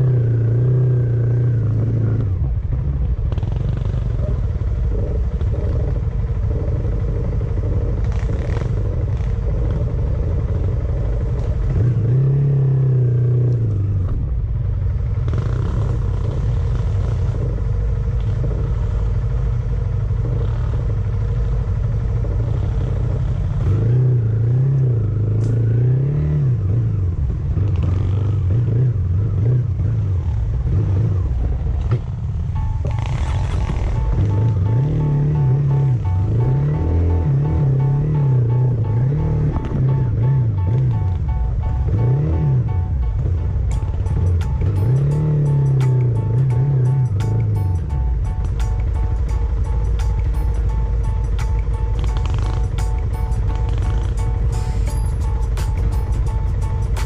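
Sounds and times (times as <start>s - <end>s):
steady low rumble: 0.0s - 57.0s
vehicle engine speeding up: 0.0s - 57.0s.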